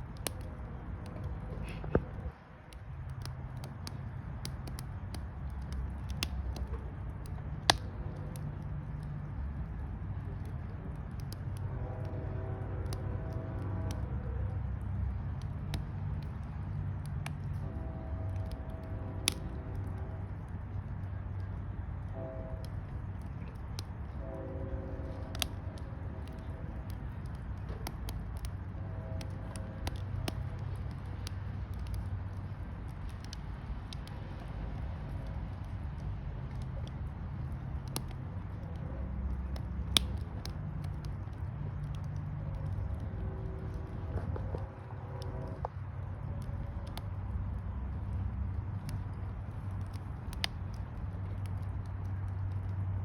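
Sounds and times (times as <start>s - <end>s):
campfire crackling and popping: 0.0s - 53.0s
low rumble: 0.0s - 53.0s.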